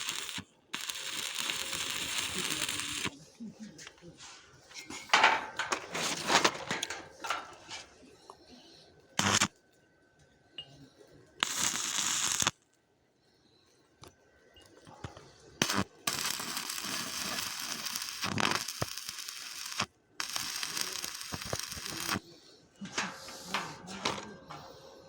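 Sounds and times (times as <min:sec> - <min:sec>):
welding arc crackling and hissing: 0:00.0 - 0:03.1, 0:09.2 - 0:09.5, 0:11.4 - 0:12.6, 0:15.6 - 0:22.3.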